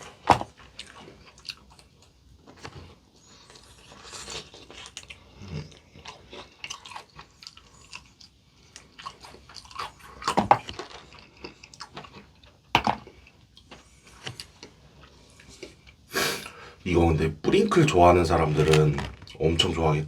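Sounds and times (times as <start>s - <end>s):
crunchy chewing: 0.0s - 16.0s.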